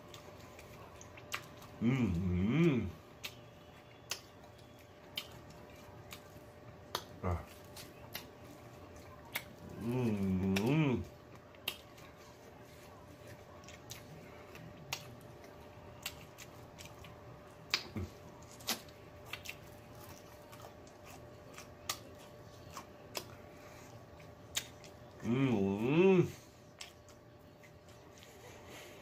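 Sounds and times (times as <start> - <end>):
chewing and mouth smacking: 0.0 - 25.3, 26.6 - 28.9
faint steady hum: 0.0 - 29.0.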